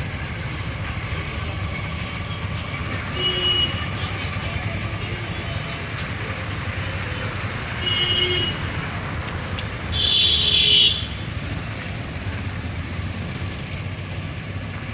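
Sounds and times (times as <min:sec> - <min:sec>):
road traffic rumble: 0:00.0 - 0:14.9
car horn toots: 0:03.1 - 0:04.0, 0:07.8 - 0:08.7, 0:09.9 - 0:11.3.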